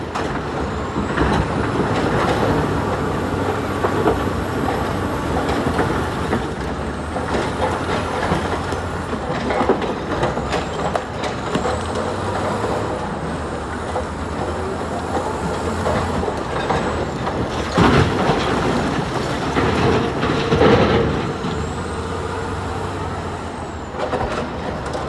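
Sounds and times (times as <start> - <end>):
diesel machinery running: 0.0 - 25.0
irregular knocks and clatter: 15.3 - 22.0.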